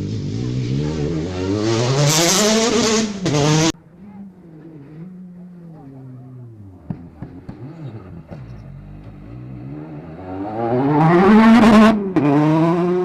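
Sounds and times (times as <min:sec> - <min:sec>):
rally car engine accelerating: 0:00.0 - 0:13.0.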